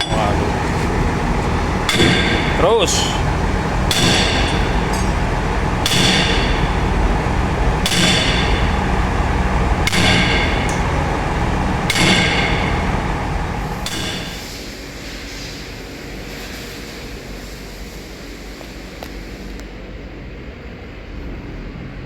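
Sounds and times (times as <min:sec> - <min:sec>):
hammer striking metal: 0:00.0 - 0:14.6
engine running steadily: 0:00.0 - 0:14.7.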